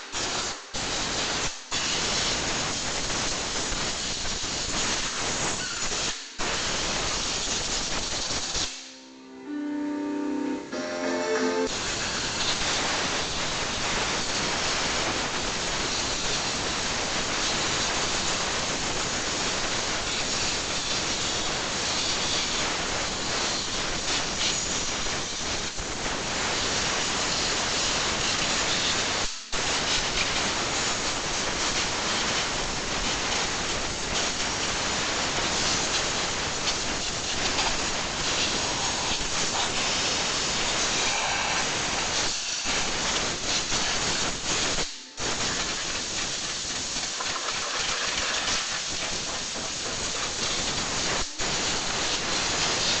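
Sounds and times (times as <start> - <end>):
compressed air blow gun hissing: 26.8 - 53.0.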